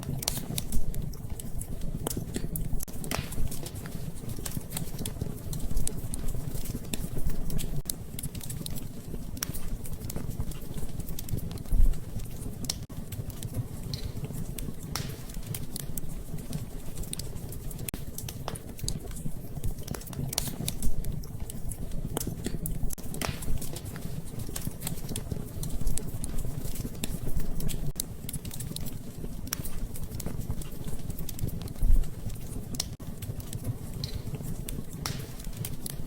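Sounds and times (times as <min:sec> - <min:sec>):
wood fire crackling: 0:00.0 - 0:36.0.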